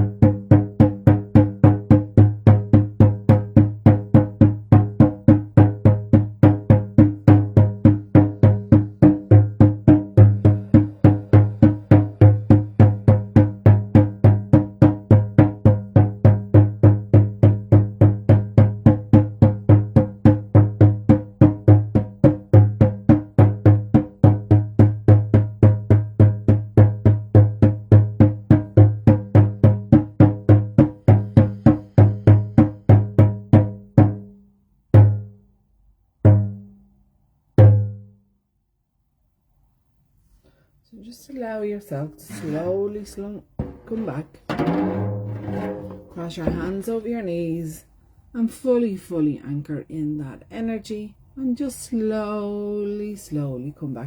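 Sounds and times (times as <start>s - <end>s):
hand drum beating: 0.0s - 34.3s, 36.3s - 36.7s, 43.5s - 46.9s.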